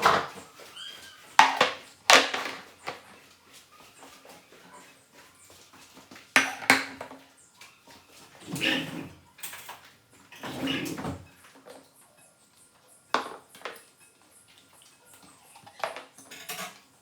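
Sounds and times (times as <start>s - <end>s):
tableware clinking: 15.7s - 16.9s.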